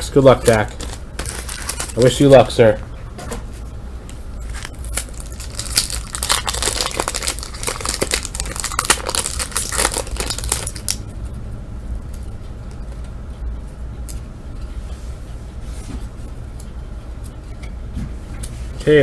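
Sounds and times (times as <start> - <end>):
low steady hum: 0.0 - 19.0
wrapper tearing and crinkling: 0.5 - 2.2, 4.5 - 11.0.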